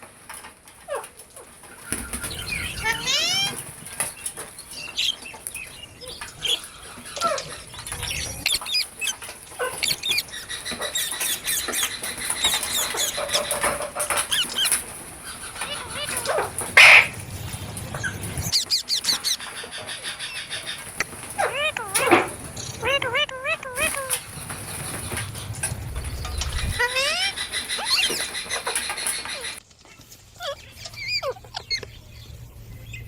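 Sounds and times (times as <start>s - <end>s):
parrots chirping and squeaking: 0.8s - 33.0s
parrot harsh squawk: 2.3s - 3.6s, 12.7s - 19.5s, 21.0s - 24.3s, 26.6s - 29.6s, 30.4s - 31.8s.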